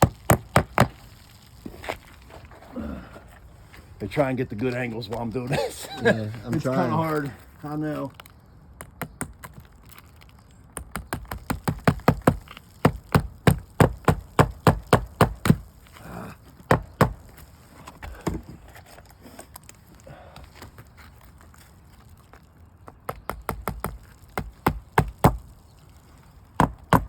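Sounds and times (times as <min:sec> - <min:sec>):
tool striking roof shingles: 0:00.0 - 0:01.0, 0:10.8 - 0:15.7, 0:16.6 - 0:18.7, 0:26.6 - 0:27.0.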